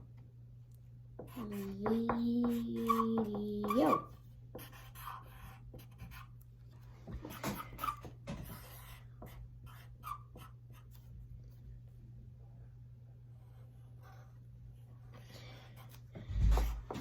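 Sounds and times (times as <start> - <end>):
pencil scratching on paper: 1.2 - 6.4, 7.0 - 11.1, 13.3 - 17.0.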